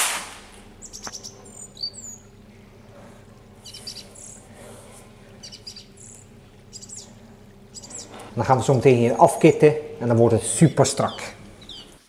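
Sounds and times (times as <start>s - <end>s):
steady low hum: 0.0s - 12.0s
birds chirping and whistling: 0.8s - 2.9s, 3.6s - 8.7s, 9.7s - 12.0s.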